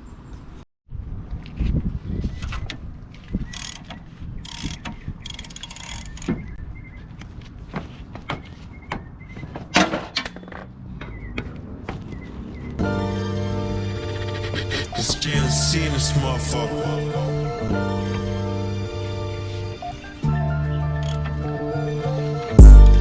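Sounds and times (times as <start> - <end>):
fast clicks: 3.5 - 6.4.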